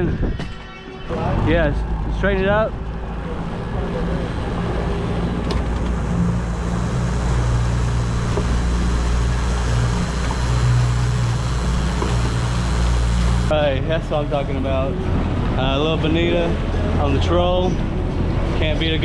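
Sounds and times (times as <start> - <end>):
wind: 0.0 - 19.0
boat engine running: 1.1 - 19.0
water noise: 1.2 - 13.6.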